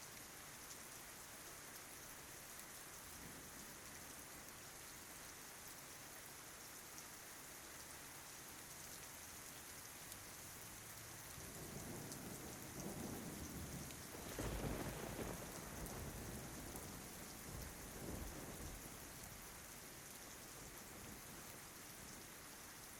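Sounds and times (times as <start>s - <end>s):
steady rain falling: 0.0s - 22.9s
low roll of thunder: 11.4s - 19.0s.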